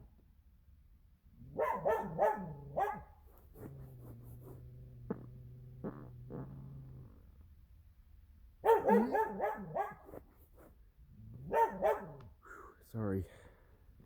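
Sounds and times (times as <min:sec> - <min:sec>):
dog barking: 0:01.4 - 0:04.3, 0:08.6 - 0:10.2, 0:11.4 - 0:12.3.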